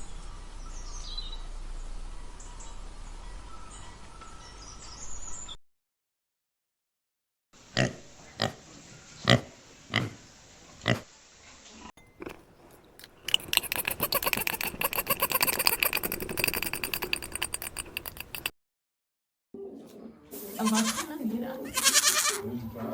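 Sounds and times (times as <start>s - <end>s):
rattling squealing animal calls: 12.2s - 18.5s, 21.7s - 22.4s
short sharp animal calls: 13.5s - 18.2s.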